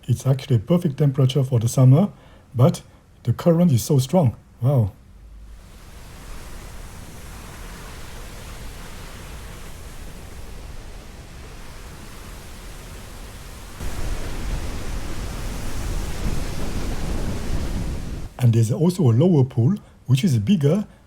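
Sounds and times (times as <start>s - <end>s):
waterfall and fast current rushing: 4.7s - 19.7s.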